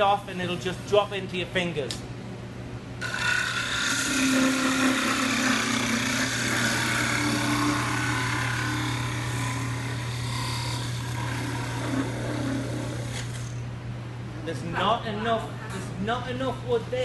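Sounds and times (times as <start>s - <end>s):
parting tool cutting wood on lathe: 3.0s - 13.5s.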